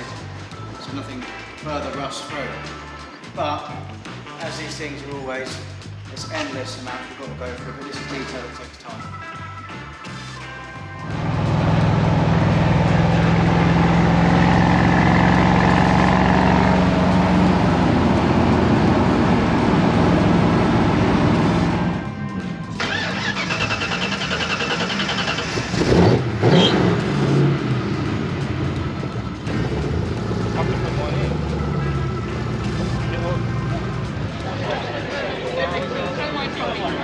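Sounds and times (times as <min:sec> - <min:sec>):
vehicle engine running: 0:10.9 - 0:37.0.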